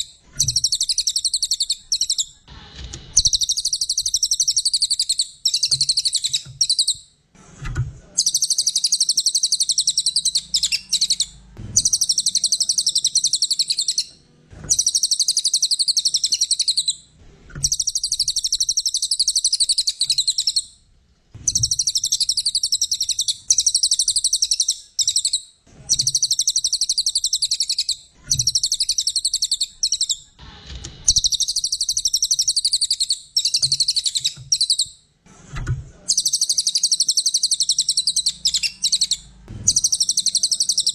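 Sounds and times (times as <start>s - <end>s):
songbird buzzy trills: 8.2s - 20.7s, 36.1s - 40.9s.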